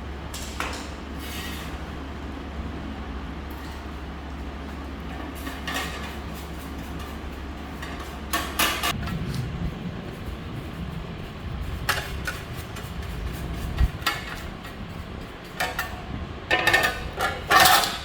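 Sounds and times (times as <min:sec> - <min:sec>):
steady low hum: 0:00.0 - 0:18.0
uneven low rumble: 0:08.9 - 0:16.5
metal parts clattering: 0:15.6 - 0:18.0.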